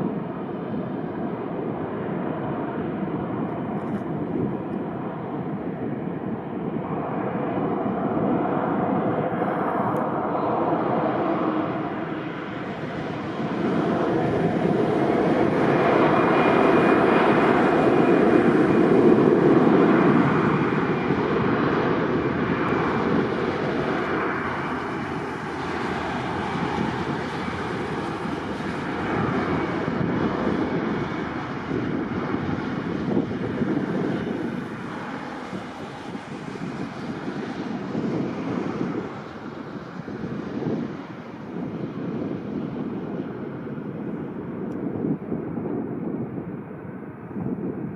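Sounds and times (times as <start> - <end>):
jet engines roaring: 0.0 - 47.9.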